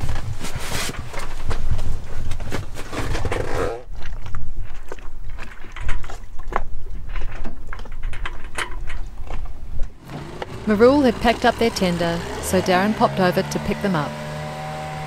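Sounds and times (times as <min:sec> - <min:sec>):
outboard motor rumbling: 0:10.0 - 0:15.0.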